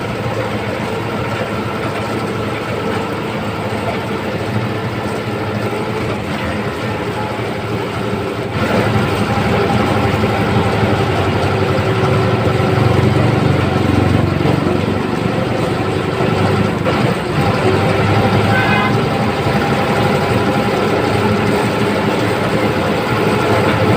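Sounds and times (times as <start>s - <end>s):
bus diesel engine under load: 0.0s - 23.9s
short high tone: 18.3s - 19.2s.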